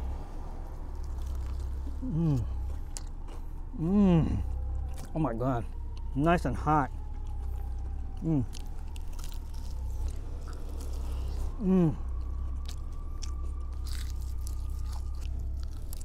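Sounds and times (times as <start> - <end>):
chewing crispy food: 0.0 - 16.0
steady low hum: 0.0 - 16.0
crunching bite: 0.7 - 3.5, 7.1 - 16.0
person humming approval: 2.0 - 2.6, 11.6 - 12.0.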